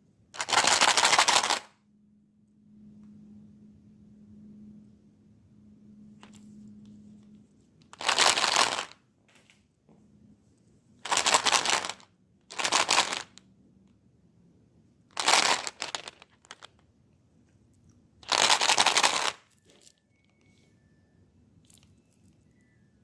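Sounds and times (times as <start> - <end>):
crackling crinkling noise: 7.8 - 9.0, 15.2 - 16.8, 18.2 - 19.4.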